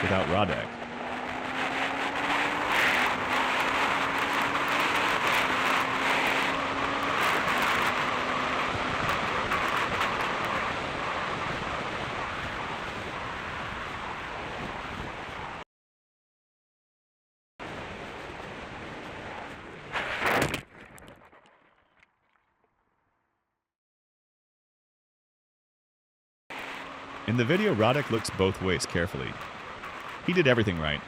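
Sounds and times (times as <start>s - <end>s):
wind rushing over microphone: 0.0s - 15.6s, 17.6s - 20.6s.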